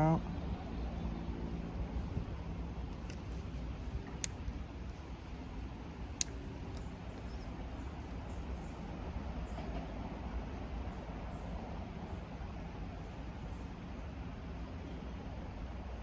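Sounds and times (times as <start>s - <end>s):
sharp clicks: 2.0s - 7.0s.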